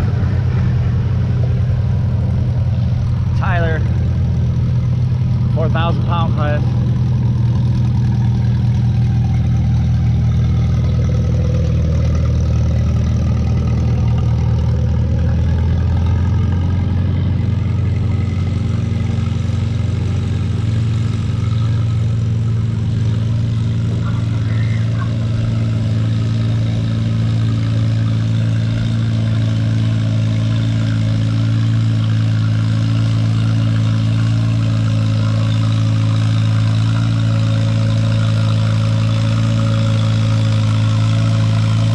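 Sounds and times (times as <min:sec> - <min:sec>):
tractor engine running under load: 0:00.0 - 0:41.9.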